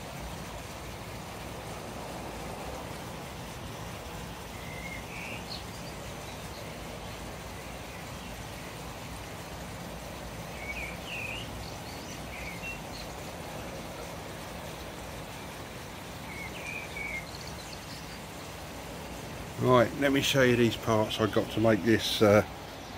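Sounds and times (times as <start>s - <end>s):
outdoor rush of noise: 0.0s - 22.9s
small bird chirping: 4.5s - 8.8s, 10.5s - 13.4s, 16.2s - 18.7s.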